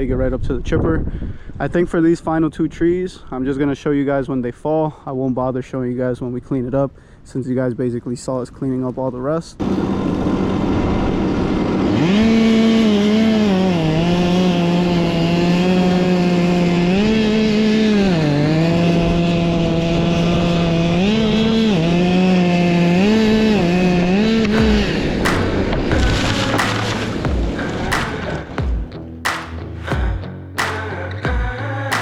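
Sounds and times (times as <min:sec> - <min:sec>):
chainsaw cutting wood: 0:09.6 - 0:30.0, 0:30.6 - 0:31.0.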